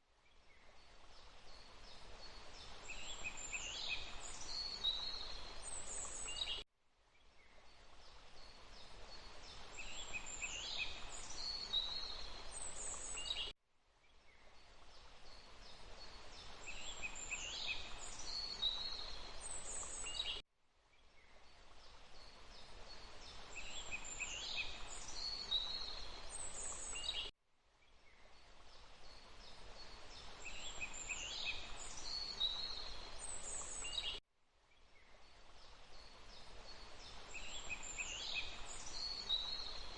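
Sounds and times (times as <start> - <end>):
rushing water: 0.8 - 6.5, 7.7 - 13.4, 14.6 - 20.2, 21.6 - 27.2, 28.4 - 34.1, 35.2 - 39.9.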